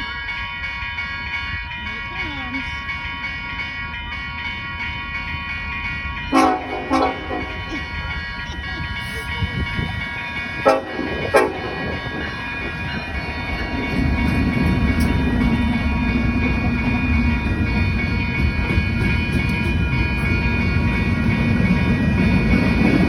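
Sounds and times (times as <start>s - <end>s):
locomotive engine rumble: 0.0s - 23.0s
train horn blast: 6.3s - 7.6s, 10.6s - 11.9s.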